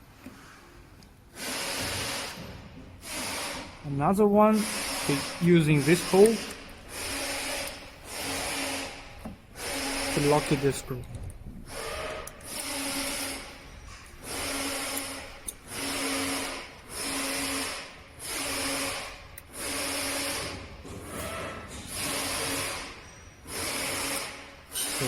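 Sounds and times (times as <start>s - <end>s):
screwdriver driving a screw: 4.6s - 10.8s, 11.7s - 13.6s, 14.2s - 20.6s, 23.5s - 25.0s.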